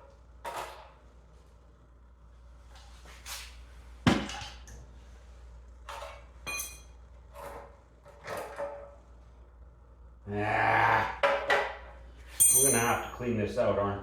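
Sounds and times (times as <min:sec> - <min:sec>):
metal tools knocking and clinking: 0:06.4 - 0:06.9, 0:12.4 - 0:13.2.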